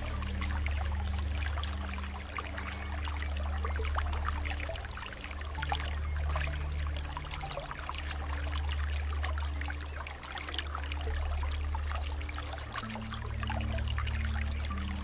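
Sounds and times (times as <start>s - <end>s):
low steady drone: 0.0s - 15.0s
water trickling and bubbling: 0.0s - 15.0s.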